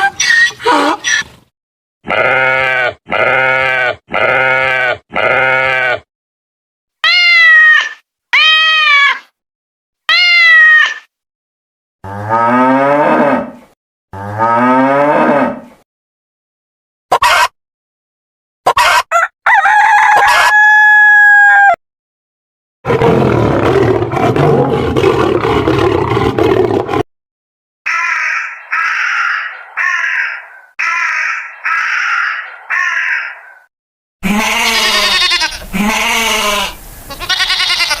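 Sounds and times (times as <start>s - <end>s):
animal bleating: 2.0s - 6.1s, 7.0s - 9.2s, 34.2s - 38.0s
rooster crowing: 19.1s - 21.8s
rough noisy animal call: 27.9s - 38.0s.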